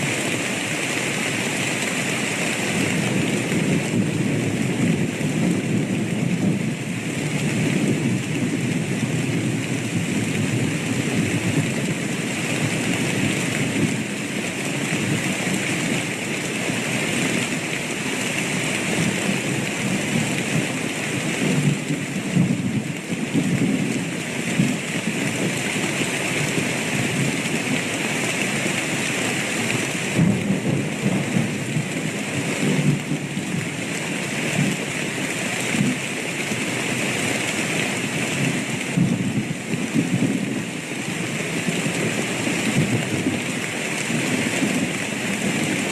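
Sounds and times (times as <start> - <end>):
heavy rain: 0.0 - 45.9
low thunder rumbling: 19.0 - 27.9, 30.0 - 33.7, 38.4 - 40.7.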